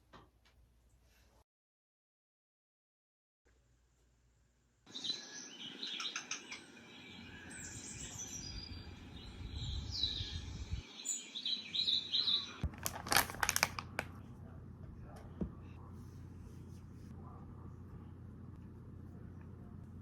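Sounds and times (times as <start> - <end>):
small birds chirping: 4.9 - 12.6.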